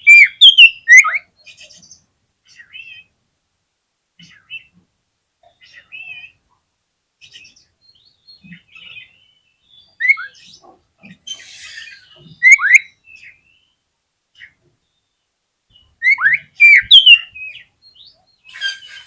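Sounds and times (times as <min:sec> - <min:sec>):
bird singing whistled phrases: 0:00.0 - 0:01.2, 0:12.4 - 0:13.4, 0:15.8 - 0:19.0.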